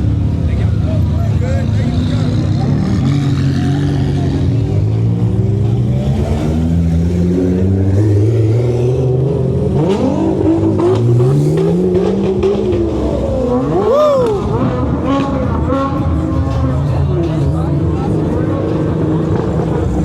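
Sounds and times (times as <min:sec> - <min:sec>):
car engine revving: 0:00.0 - 0:20.0
car engines idling: 0:00.0 - 0:20.0.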